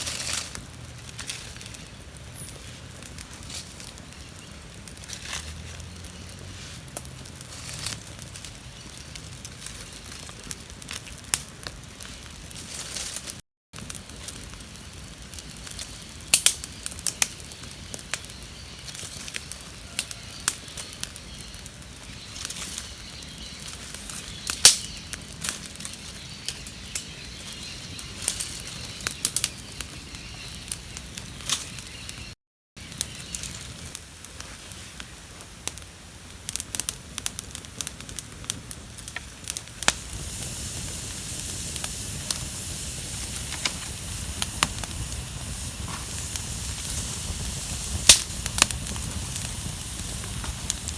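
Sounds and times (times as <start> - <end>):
low rush of flame: 0.0 - 31.8, 32.8 - 50.9
campfire crackling and popping: 0.0 - 50.9
steady hiss: 37.6 - 50.9.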